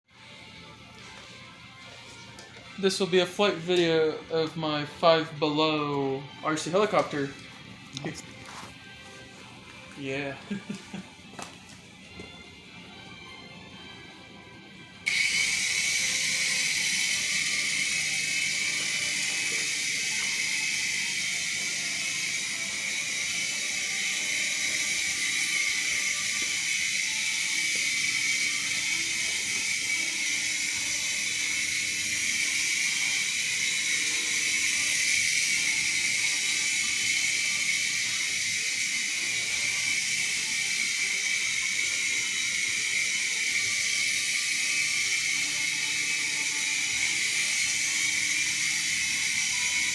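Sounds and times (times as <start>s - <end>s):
toy helicopter motors whirring: 15.0s - 49.9s.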